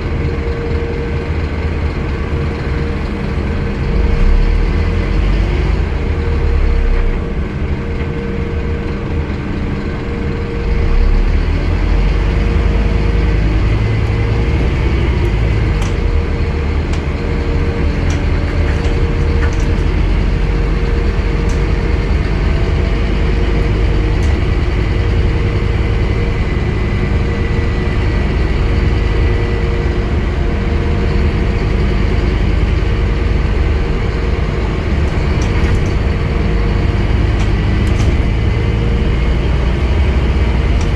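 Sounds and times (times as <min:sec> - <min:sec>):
bus engine droning: 0:00.0 - 0:40.9
faint clicks and rattles: 0:12.1 - 0:27.2, 0:32.1 - 0:40.9.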